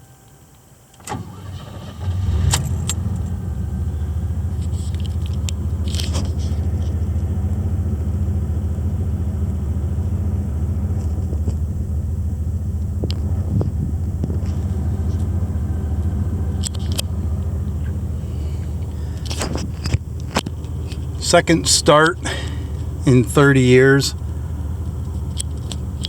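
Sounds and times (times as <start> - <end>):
car engine starting and idling: 0.0 - 26.0.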